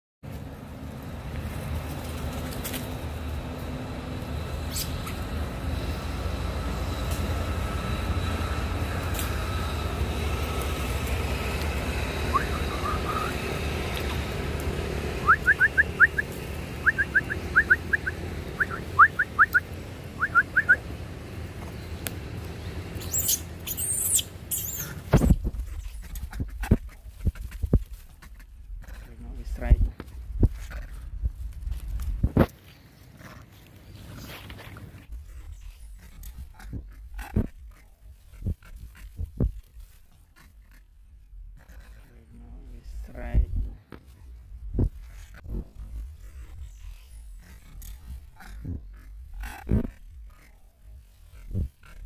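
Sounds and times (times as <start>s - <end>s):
wind rumble: 0.3s - 32.8s, 33.8s - 52.0s
bird chirping: 15.2s - 20.8s, 21.6s - 25.0s
microphone handling noise: 25.0s - 27.9s, 44.6s - 46.8s, 51.4s - 51.9s.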